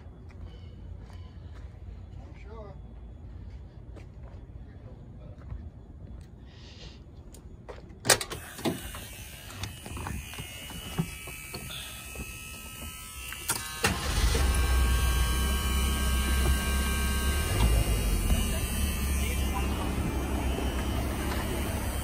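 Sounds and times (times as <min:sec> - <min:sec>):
car engine cranking and idling: 0:13.2 - 0:22.0.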